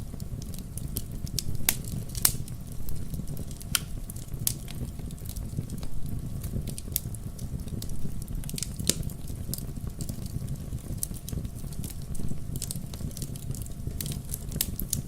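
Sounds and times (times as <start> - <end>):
logs crackling in fireplace: 0.0 - 15.0.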